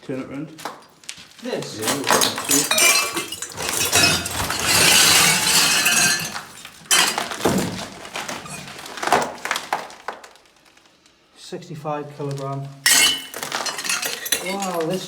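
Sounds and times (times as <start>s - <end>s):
glass ornaments clinking: 1.8s - 8.7s, 12.9s - 15.0s.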